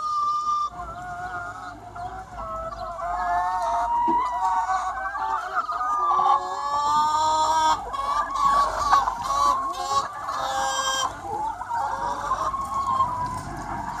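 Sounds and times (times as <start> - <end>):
hens clucking and calling: 0.0 - 14.0.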